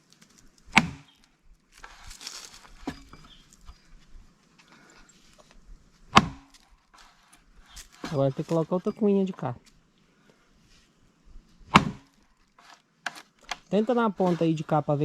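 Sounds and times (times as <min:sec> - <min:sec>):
wedge being driven into log: 0:00.7 - 0:01.2, 0:02.7 - 0:03.3, 0:06.1 - 0:08.6, 0:11.6 - 0:15.0.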